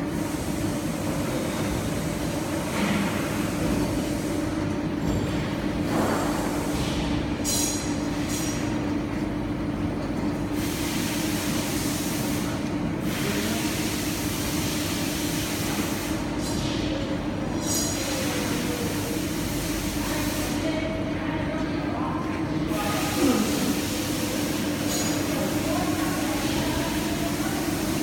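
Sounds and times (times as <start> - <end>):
machine hiss: 10.5 - 16.5, 22.7 - 28.0.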